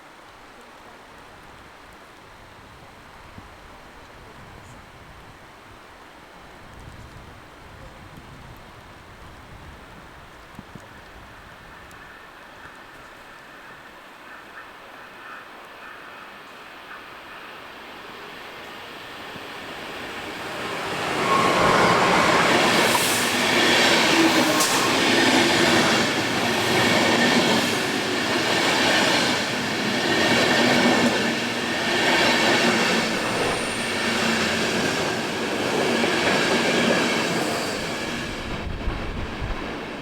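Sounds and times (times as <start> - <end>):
train rolling past: 9.6 - 40.0.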